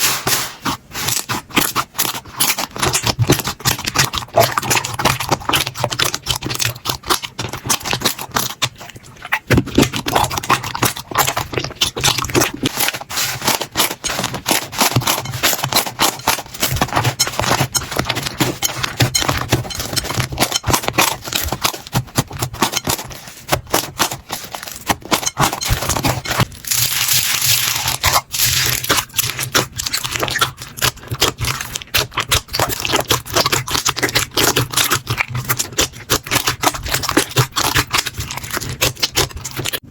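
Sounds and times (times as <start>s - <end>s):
slime squeezed by hand crackling: 22.6s - 34.7s.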